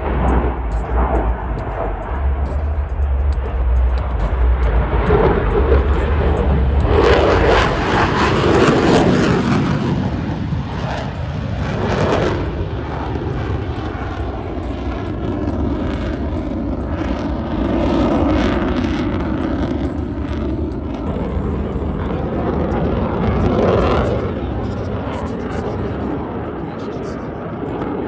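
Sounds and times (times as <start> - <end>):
aircraft flying past: 0.0 - 28.0.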